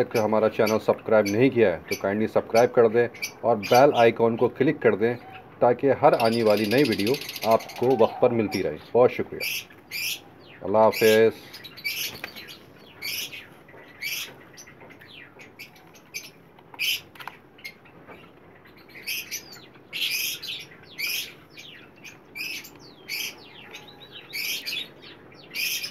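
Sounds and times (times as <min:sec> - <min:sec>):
small birds chirping: 0:00.0 - 0:25.9.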